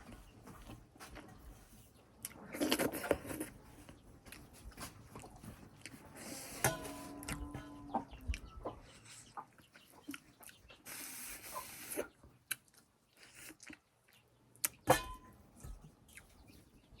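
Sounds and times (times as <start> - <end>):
slurping soup: 10.8 - 12.2
chewing with mouth smacks: 11.8 - 14.8.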